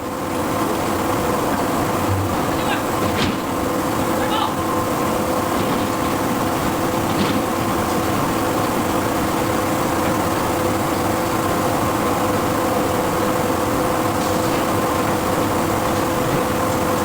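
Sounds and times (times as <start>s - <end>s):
machinery drone: 1.2s - 5.4s.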